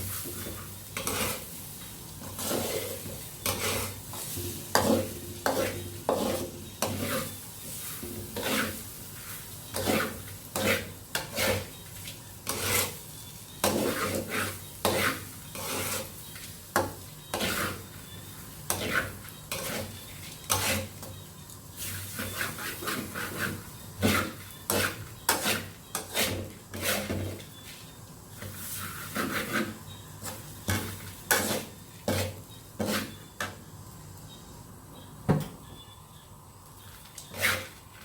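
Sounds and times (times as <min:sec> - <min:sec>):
utensil clinking and scraping pot: 0:00.1 - 0:01.5, 0:02.2 - 0:11.8, 0:12.4 - 0:13.0.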